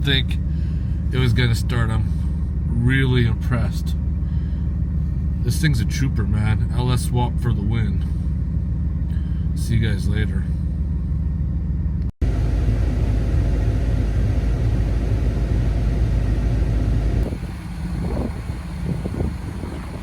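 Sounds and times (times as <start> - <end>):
engine low rumble: 0.0 - 20.0.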